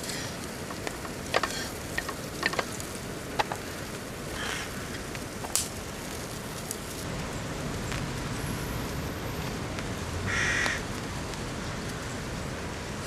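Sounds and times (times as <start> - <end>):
rain hissing: 0.0 - 13.0
crow cawing: 4.3 - 5.0, 10.3 - 10.8.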